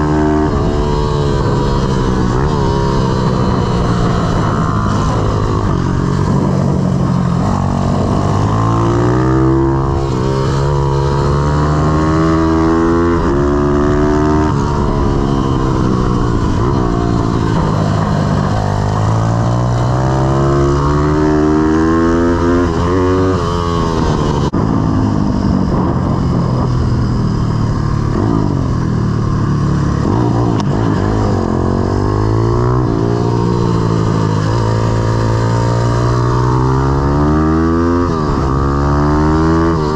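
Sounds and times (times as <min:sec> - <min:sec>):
pit bike engine revving: 0:00.0 - 0:24.5.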